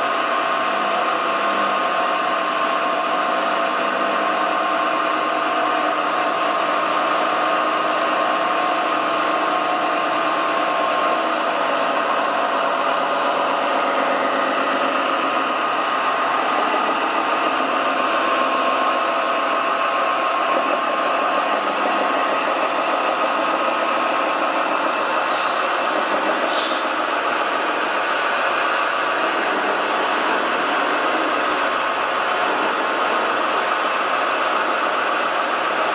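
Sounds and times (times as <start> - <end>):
short high hisses: 25.2 - 25.7, 26.4 - 26.9.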